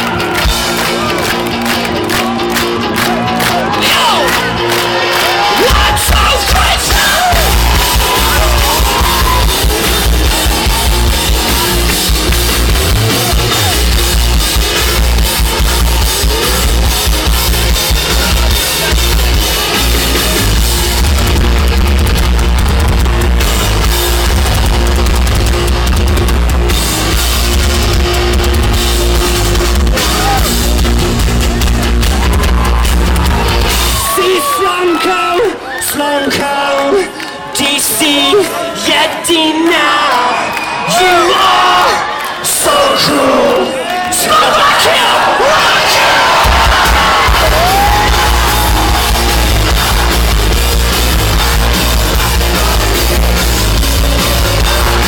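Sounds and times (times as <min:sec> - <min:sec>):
rock band playing live: 0:00.0 - 0:38.5, 0:45.6 - 0:55.0
heavy steady bass: 0:05.6 - 0:34.0, 0:46.4 - 0:55.0.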